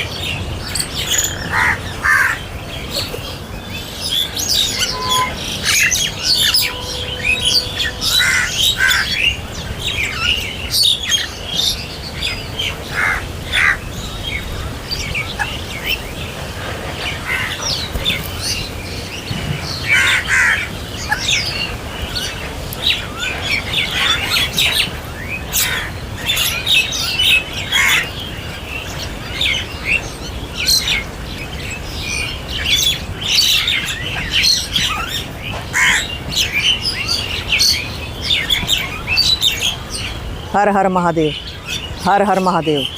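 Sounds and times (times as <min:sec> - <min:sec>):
small birds chirping: 0:00.0 - 0:42.9
crows cawing: 0:01.4 - 0:02.5, 0:07.7 - 0:09.4, 0:12.9 - 0:13.8, 0:19.8 - 0:21.2, 0:25.6 - 0:26.0, 0:27.7 - 0:28.1, 0:35.7 - 0:36.2.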